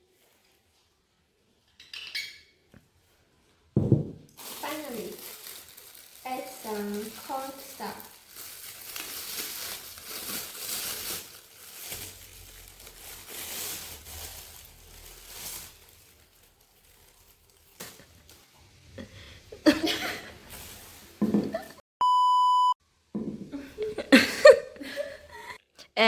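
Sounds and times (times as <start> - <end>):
plastic packet crinkling: 4.3 - 18.4.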